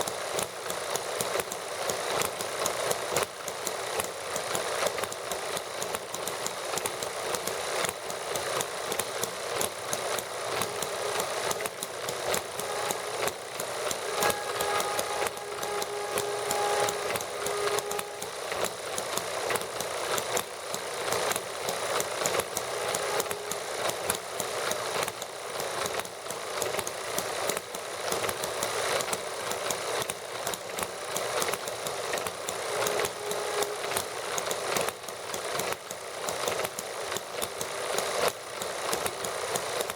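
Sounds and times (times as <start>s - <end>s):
small model engines clattering: 0.0s - 39.9s
faint high tone: 10.3s - 19.6s, 21.8s - 25.0s, 32.4s - 34.9s.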